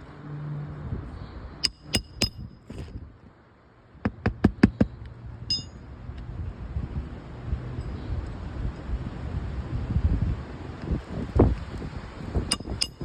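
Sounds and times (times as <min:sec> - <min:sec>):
hammer striking roofing nails: 0:01.6 - 0:02.4.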